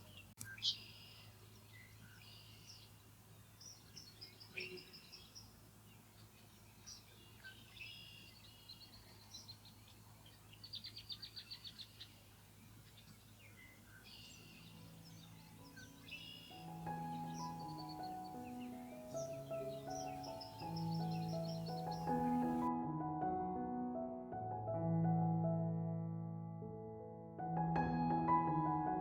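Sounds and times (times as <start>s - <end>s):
birds chirping and calling: 3.6s - 5.5s, 6.1s - 22.7s.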